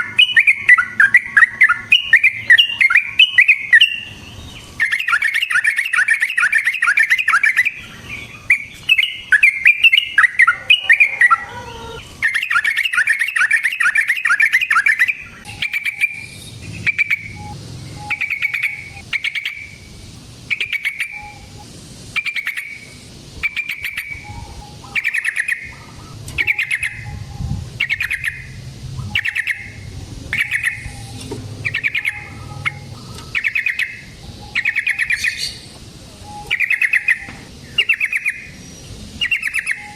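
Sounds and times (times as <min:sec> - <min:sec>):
short bird calls: 0:00.0 - 0:19.9
bird singing bubbling chatter: 0:00.0 - 0:39.9.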